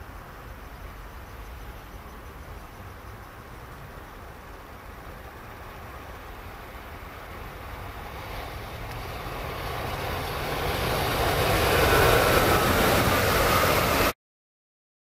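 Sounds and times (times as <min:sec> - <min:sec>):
high-speed train passing: 0:00.0 - 0:14.2.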